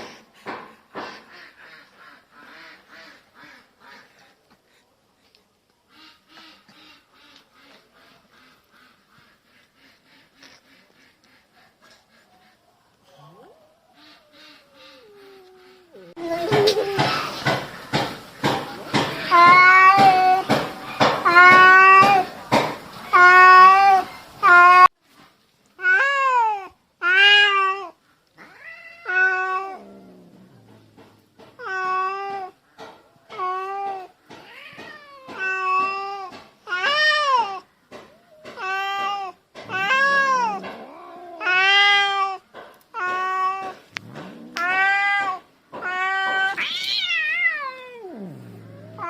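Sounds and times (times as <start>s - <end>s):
cat growling: 28.4s - 31.2s, 39.7s - 42.4s, 43.0s - 49.0s
cat yowling: 38.5s - 42.4s, 44.4s - 49.0s.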